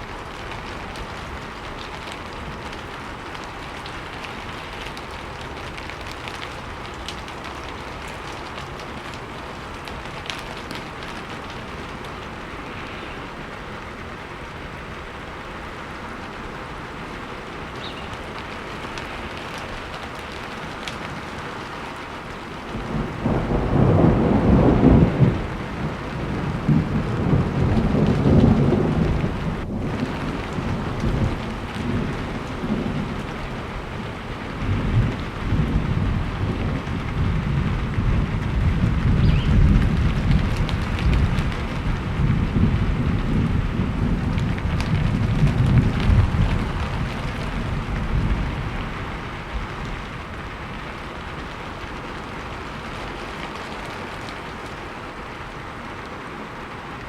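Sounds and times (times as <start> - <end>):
steady rain: 0.0 - 57.0
rolling thunder: 22.7 - 53.0.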